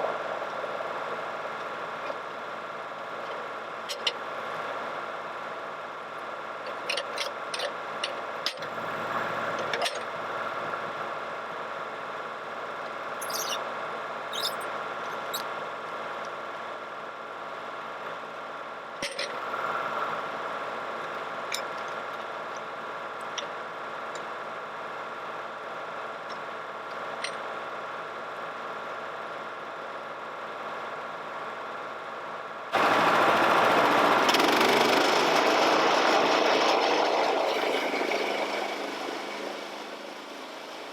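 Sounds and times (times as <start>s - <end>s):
small engine idling: 32.7s - 40.9s.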